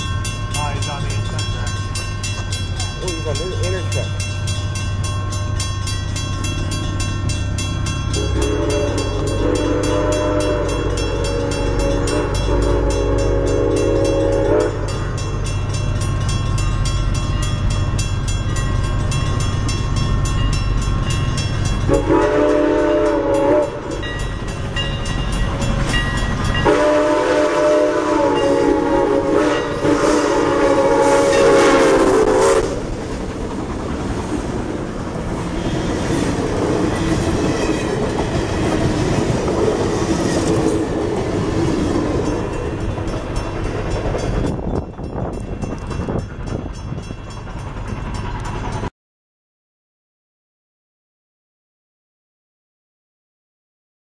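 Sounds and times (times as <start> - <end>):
locomotive horn blasts: 8.2 - 15.0, 21.8 - 24.1, 26.5 - 32.8
train wheels clicking over rail joints: 29.6 - 48.9.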